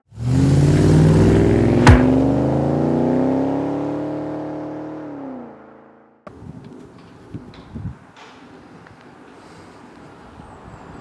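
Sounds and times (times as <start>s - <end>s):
car engine accelerating: 0.1s - 5.6s
sharp crack: 1.7s - 2.6s.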